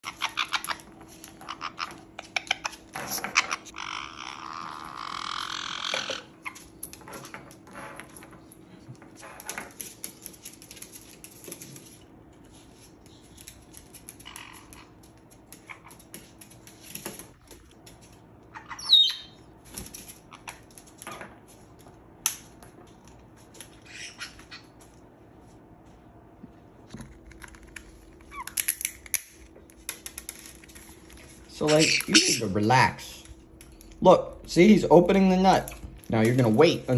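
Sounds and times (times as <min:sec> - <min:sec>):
parrot squawk: 0:00.0 - 0:06.6, 0:18.5 - 0:19.4, 0:23.8 - 0:24.8, 0:31.6 - 0:32.6
parrots cracking nut: 0:00.0 - 0:07.0, 0:27.3 - 0:30.7.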